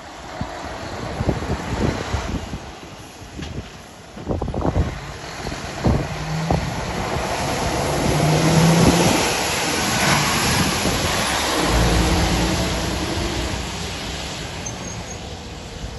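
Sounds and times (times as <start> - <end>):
rushing noise: 4.3 - 15.9.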